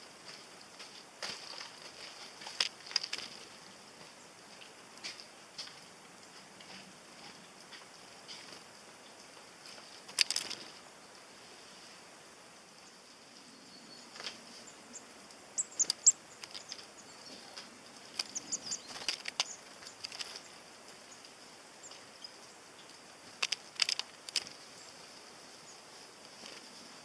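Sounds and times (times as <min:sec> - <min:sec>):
faint steady hiss: 0:00.0 - 0:27.0
birds pecking at seeds: 0:00.2 - 0:11.2, 0:14.1 - 0:27.0.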